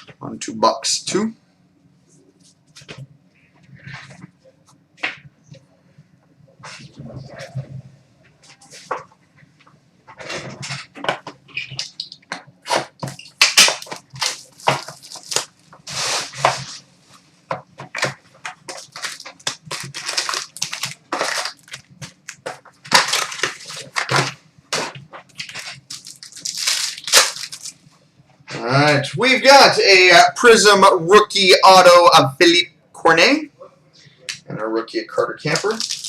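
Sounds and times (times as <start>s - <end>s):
shrink wrap crinkling and tearing: 11.8s - 16.8s, 17.8s - 27.9s, 35.5s - 36.0s
cardboard packaging handled: 12.7s - 16.9s, 17.5s - 27.8s, 35.6s - 36.0s.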